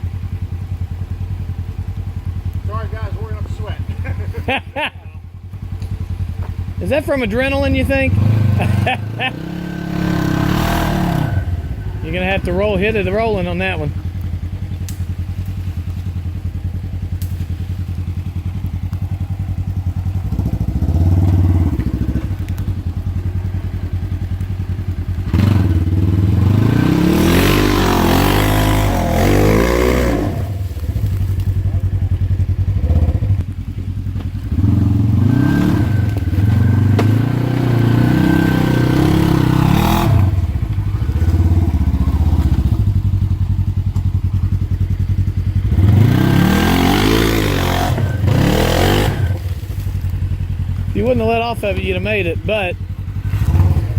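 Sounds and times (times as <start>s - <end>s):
off-road vehicle engine revving: 0.0s - 53.9s
sharp knocks on ground: 36.5s - 37.2s.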